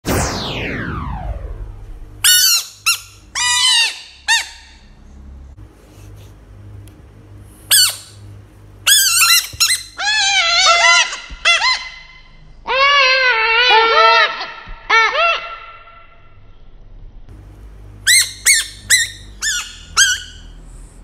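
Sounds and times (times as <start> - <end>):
frogs screaming cries: 8.9 - 15.8.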